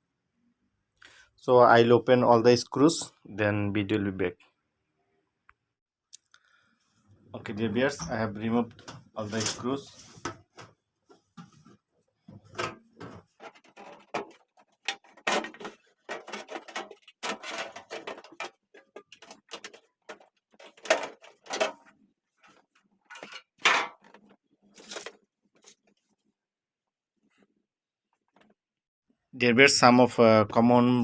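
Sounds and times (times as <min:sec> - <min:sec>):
sheet metal clicks and scrapes: 0:12.4 - 0:25.8.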